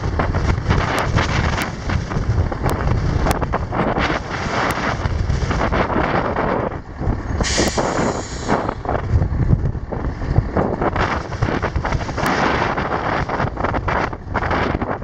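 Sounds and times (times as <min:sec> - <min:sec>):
diesel truck engine running: 0:00.0 - 0:14.8
wind buffeting microphone: 0:00.0 - 0:15.0
air brake hiss: 0:07.4 - 0:08.8.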